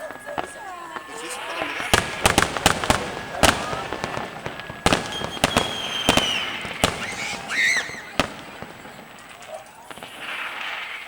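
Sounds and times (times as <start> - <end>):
fireworks bursting: 0.0 - 11.0
thin whistling tone: 0.0 - 11.0
faint crackle: 6.4 - 11.0.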